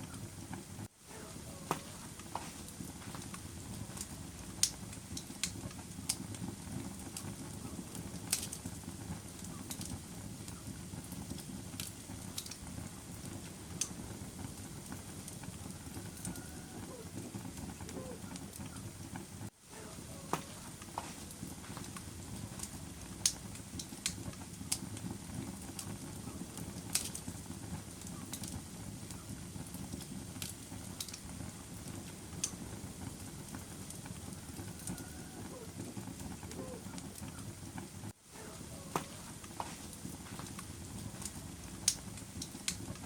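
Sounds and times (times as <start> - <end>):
wood fire crackling: 0.0 - 43.0.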